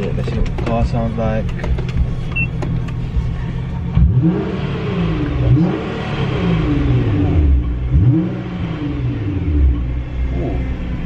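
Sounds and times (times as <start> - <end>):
car engine revving hard: 3.8 - 11.0.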